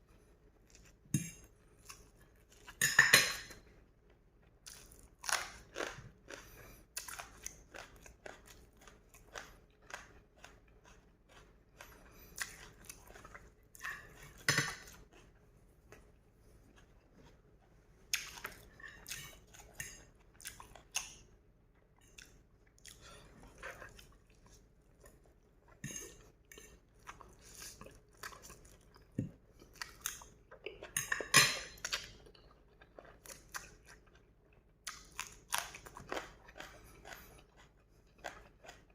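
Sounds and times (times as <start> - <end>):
chewing and crunching food: 0.0 - 2.8, 3.4 - 38.9
cutlery clatter: 2.8 - 3.6, 14.4 - 14.8, 31.0 - 31.8.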